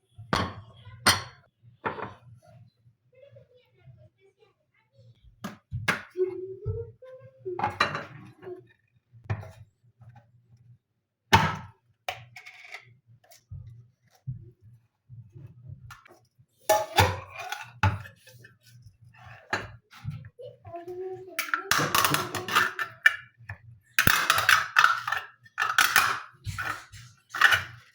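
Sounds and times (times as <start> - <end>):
dishes and cutlery clinking: 0.3 - 2.3, 7.6 - 8.6, 15.9 - 20.3, 21.3 - 27.9.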